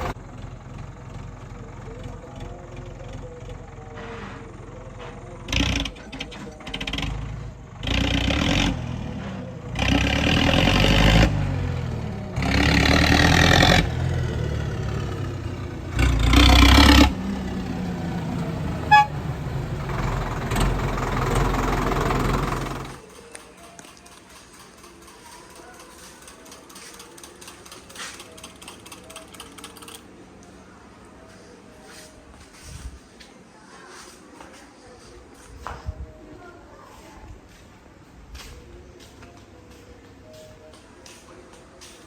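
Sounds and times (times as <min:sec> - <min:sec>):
tractor engine running: 0:00.0 - 0:30.1.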